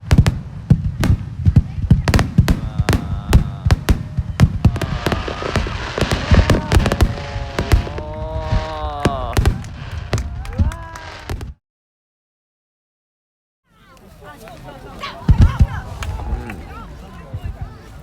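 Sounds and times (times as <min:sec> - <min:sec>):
fireworks bangs and crackles: 0:00.0 - 0:11.6, 0:15.3 - 0:16.4.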